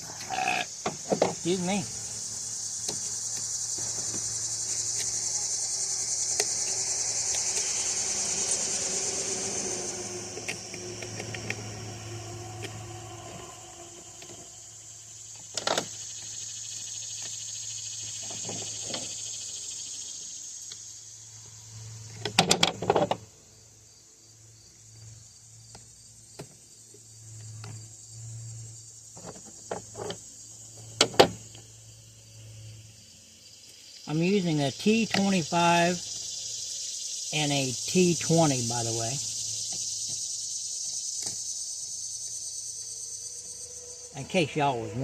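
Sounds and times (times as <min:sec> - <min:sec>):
steady low hum: 0:00.0 - 0:18.2
high hiss: 0:00.0 - 0:45.0.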